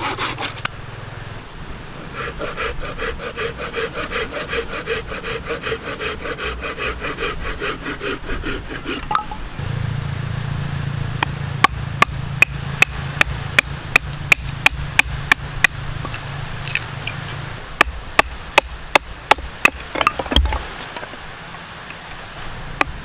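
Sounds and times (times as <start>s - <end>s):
firewood being chopped: 11.6s - 21.2s.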